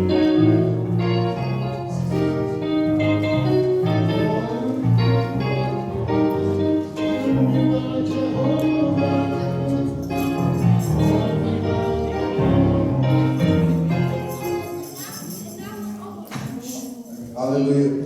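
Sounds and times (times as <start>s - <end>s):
organ-like keyboard chords: 0.0s - 15.0s
singing: 7.0s - 13.2s.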